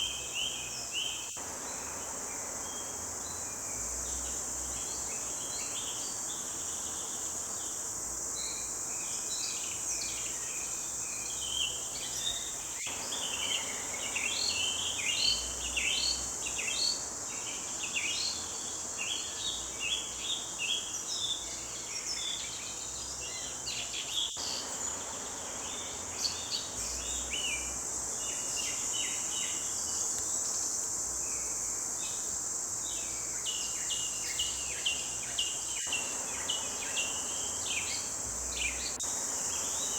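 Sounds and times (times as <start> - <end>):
high-pitched insect drone: 22.4 - 39.9.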